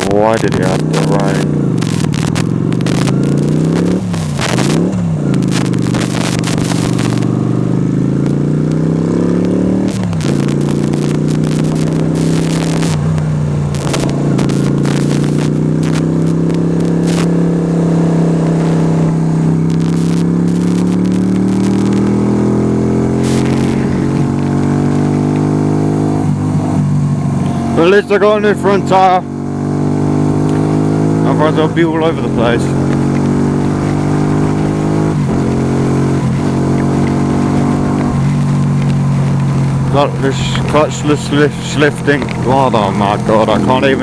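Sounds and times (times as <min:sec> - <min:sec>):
motorcycle engine: 0:00.0 - 0:44.0
wind noise on microphone: 0:01.5 - 0:07.4.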